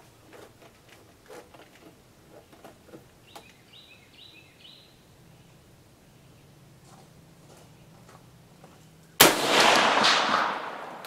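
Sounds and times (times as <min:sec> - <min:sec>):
faint outdoor background noise: 0:00.0 - 0:11.0.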